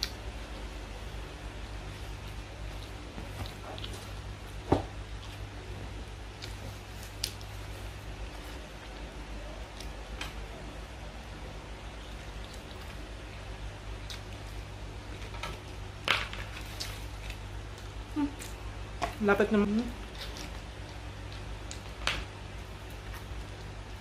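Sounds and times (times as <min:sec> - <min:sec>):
low steady hum: 0:00.0 - 0:24.0
quiet chewing: 0:01.9 - 0:10.5, 0:12.0 - 0:15.6, 0:20.0 - 0:24.0.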